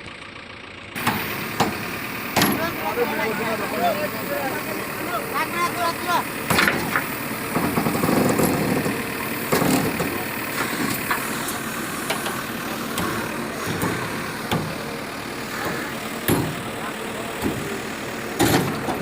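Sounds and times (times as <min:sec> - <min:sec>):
heavy engine running: 0:00.0 - 0:19.0
sharp knocks and clanks: 0:01.0 - 0:02.8, 0:06.5 - 0:14.9, 0:15.6 - 0:16.8, 0:17.4 - 0:17.8, 0:18.4 - 0:19.0.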